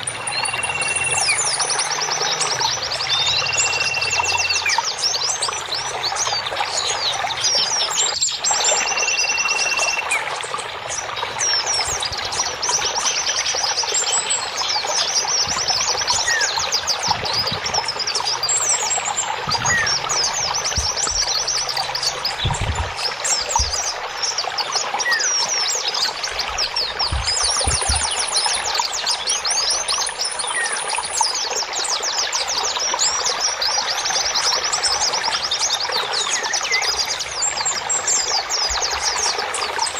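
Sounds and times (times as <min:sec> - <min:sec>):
high whistled bird notes: 0:00.0 - 0:04.9, 0:08.6 - 0:10.3
running water: 0:00.0 - 0:39.9
songbirds chirping and trilling: 0:00.0 - 0:39.9.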